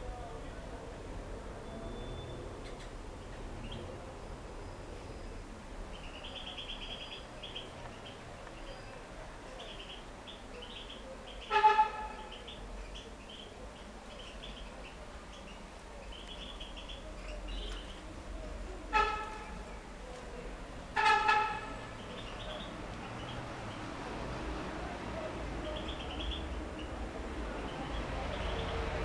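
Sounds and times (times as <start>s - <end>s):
cage birds chirping: 1.4s - 29.0s
loud honk: 11.4s - 12.4s, 18.9s - 19.7s, 20.9s - 22.1s.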